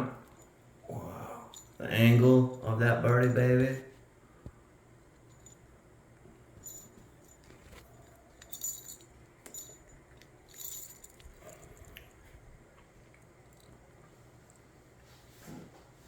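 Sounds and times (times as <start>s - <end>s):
bell ball jingling: 6.6s - 11.9s.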